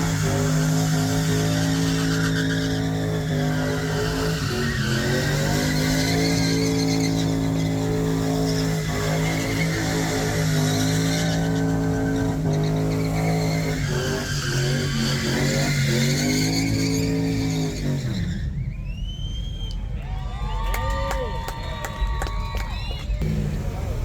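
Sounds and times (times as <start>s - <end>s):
engine revving high: 0.0s - 18.4s, 23.2s - 24.0s
tyres screeching: 0.0s - 18.5s.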